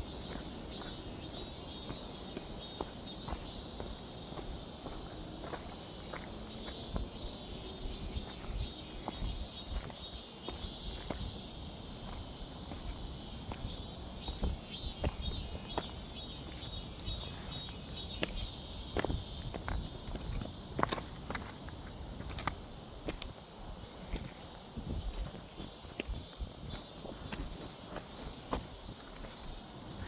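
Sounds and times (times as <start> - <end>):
insects shrill pulsing chorus: 0.0 - 20.9.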